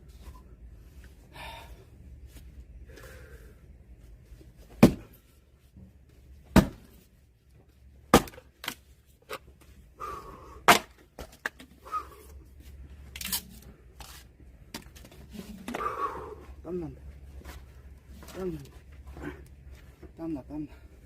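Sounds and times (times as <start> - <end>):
axe splitting logs: 4.7 - 5.2, 6.5 - 7.0, 8.1 - 9.4, 10.6 - 11.7.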